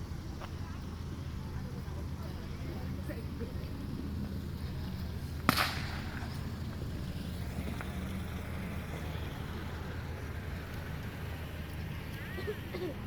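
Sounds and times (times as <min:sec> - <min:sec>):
firework crack: 0:05.2 - 0:08.8.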